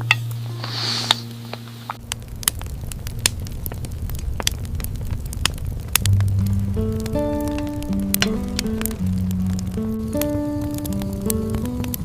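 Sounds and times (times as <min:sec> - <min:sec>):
music: 0:00.0 - 0:02.0, 0:06.0 - 0:12.0
crackling clicks: 0:00.0 - 0:12.0
low rumbling noise: 0:00.0 - 0:12.0.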